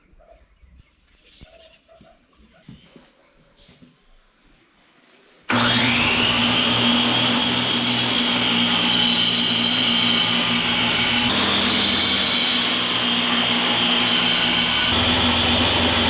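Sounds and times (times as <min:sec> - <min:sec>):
electric power tool whining: 0:05.5 - 0:16.0.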